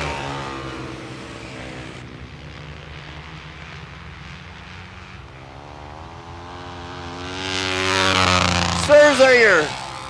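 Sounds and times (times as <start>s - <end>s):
distant racing motorcycle engines: 0.0s - 10.0s.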